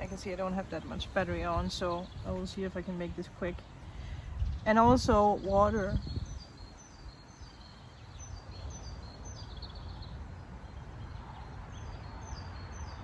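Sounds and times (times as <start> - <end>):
wind on microphone: 0.0 - 7.6
small birds chirping: 0.0 - 13.0.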